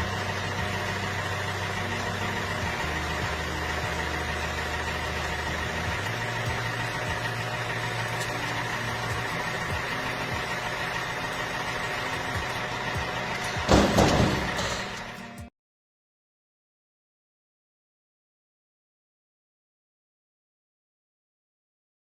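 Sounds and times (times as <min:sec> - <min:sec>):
engine idling: 0:00.0 - 0:15.5.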